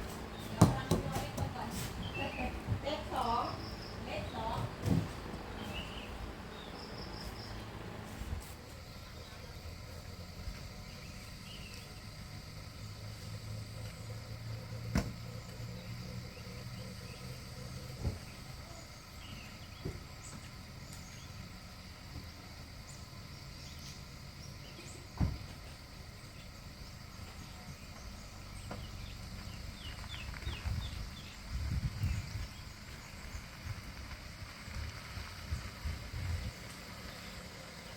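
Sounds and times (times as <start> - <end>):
steady low hum: 0.0 - 37.9
insect-like drone: 8.6 - 37.9.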